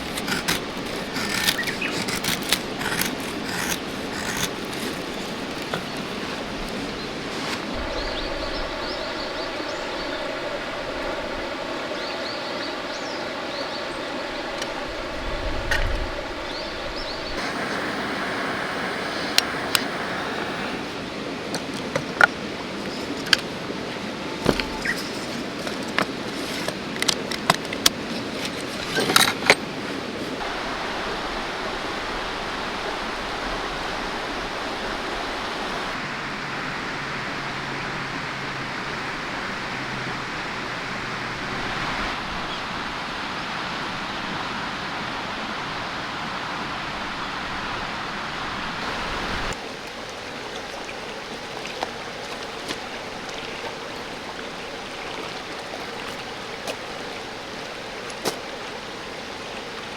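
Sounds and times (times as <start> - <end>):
river rushing over rocks: 17.4 - 21.6.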